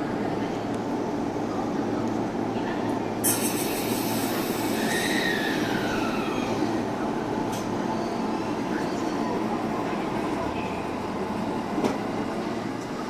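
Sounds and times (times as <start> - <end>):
air hiss: 3.2 - 5.1.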